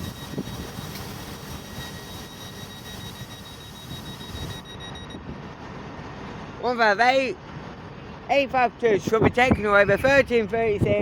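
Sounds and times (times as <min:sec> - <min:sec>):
thin high whine: 0:00.0 - 0:05.4
diesel train engine idling: 0:00.0 - 0:09.0.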